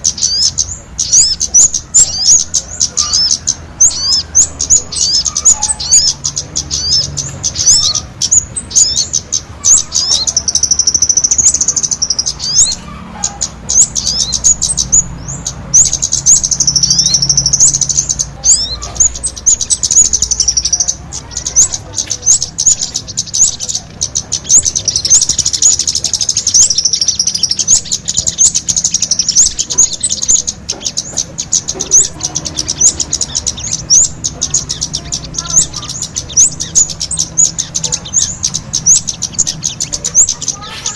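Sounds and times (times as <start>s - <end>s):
songbird chirps and trills: 0.0s - 40.9s.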